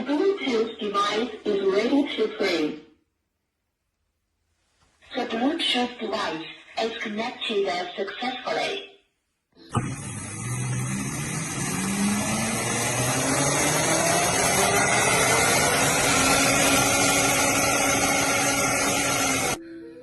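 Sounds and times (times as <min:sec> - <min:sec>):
electric motor whine: 0:09.7 - 0:19.6.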